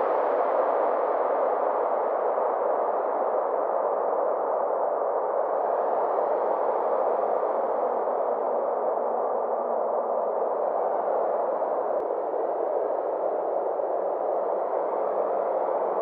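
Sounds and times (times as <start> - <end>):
muffled noise drone: 7.2 - 16.0.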